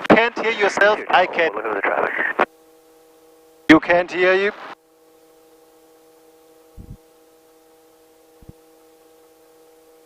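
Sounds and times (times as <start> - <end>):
electrical hum and hiss: 0.0 - 10.0
low thumps: 6.8 - 7.0.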